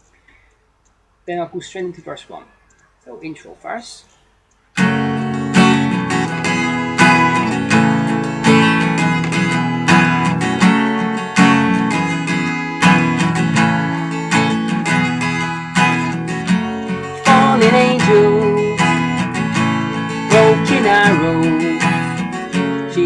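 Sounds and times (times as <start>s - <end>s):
acoustic guitar strumming: 4.8s - 23.0s.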